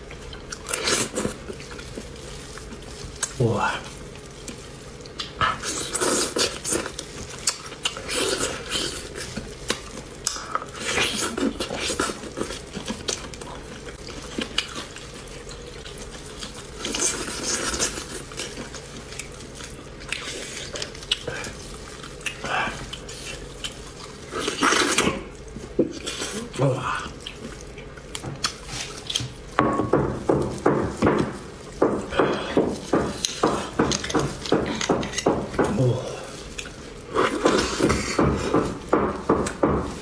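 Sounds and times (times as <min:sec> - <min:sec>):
sucking and slurping marrow: 0:00.0 - 0:29.6, 0:30.2 - 0:40.0.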